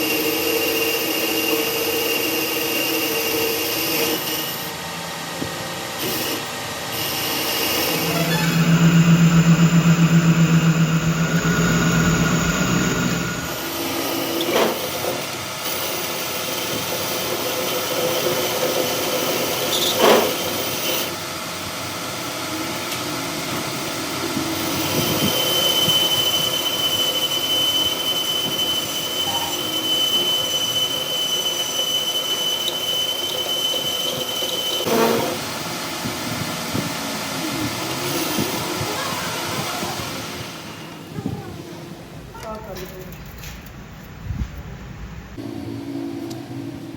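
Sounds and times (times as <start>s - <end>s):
noisy mechanical running: 0.0s - 46.9s
motor humming: 4.1s - 14.5s
high-pitched squeal: 6.0s - 14.6s, 24.5s - 35.6s.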